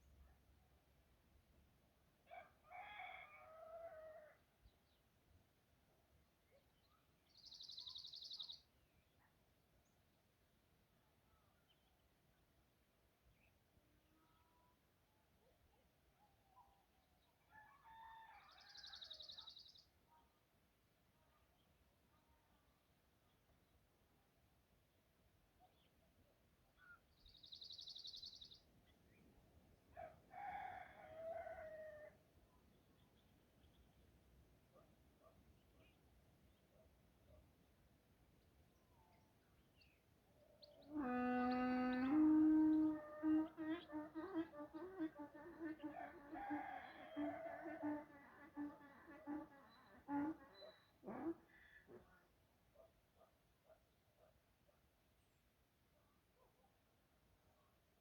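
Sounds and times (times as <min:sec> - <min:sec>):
rooster crowing: 0:02.3 - 0:04.4, 0:17.5 - 0:19.2, 0:30.0 - 0:32.2, 0:41.0 - 0:49.8
lower longer animal call: 0:40.8 - 0:52.0.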